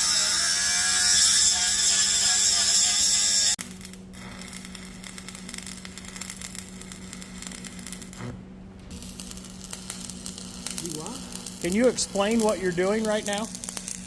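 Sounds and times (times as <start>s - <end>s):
welding arc crackling: 0.0s - 14.0s
steady low hum: 3.5s - 14.0s.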